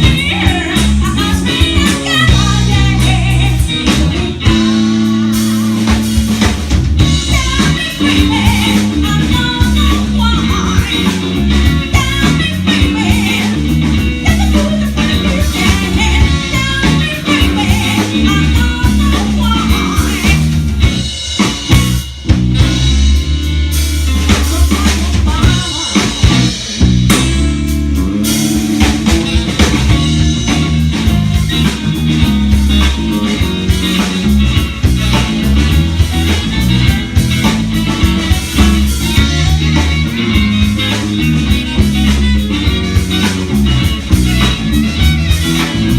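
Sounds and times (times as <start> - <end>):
person singing: 0.0 - 6.1, 7.3 - 20.5, 24.3 - 26.7
bass guitar: 0.0 - 45.9
drum kit: 0.0 - 45.9
electric guitar: 0.0 - 45.9.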